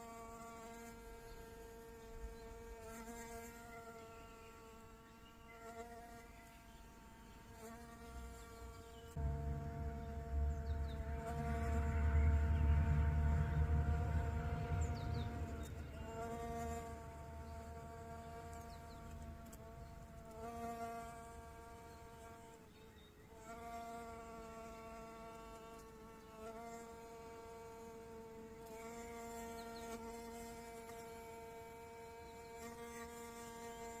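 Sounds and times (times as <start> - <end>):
bee-fly wings buzzing: 0.0 - 34.0
low rumble: 9.2 - 19.5.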